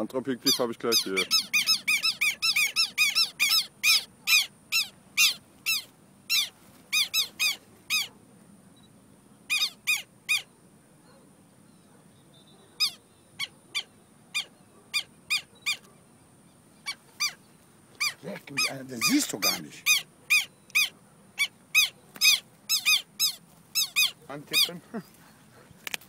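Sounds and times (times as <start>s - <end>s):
bird calling sharp high notes: 0.4s - 8.1s, 18.0s - 24.7s.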